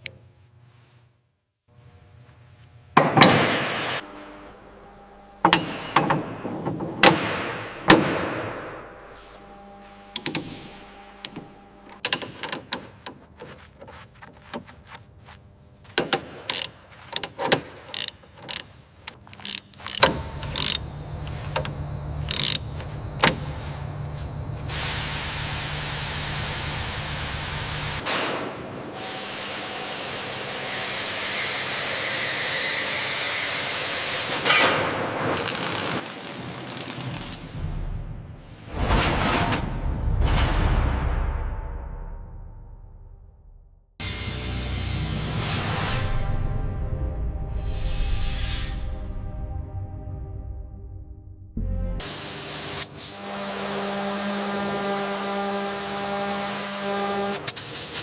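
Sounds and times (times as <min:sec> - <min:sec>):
machine humming: 0:04.0 - 0:12.3, 0:17.9 - 0:28.0
sharp clicks and metallic knocks: 0:10.2 - 0:14.7, 0:16.0 - 0:23.5.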